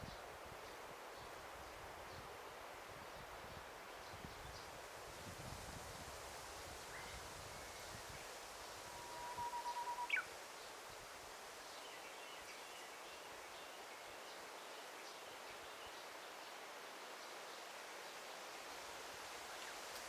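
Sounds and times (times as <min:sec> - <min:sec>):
forest ambience hiss: 0:00.0 - 0:20.0
faint high chirps: 0:08.9 - 0:10.3
bird trilling: 0:09.0 - 0:10.3.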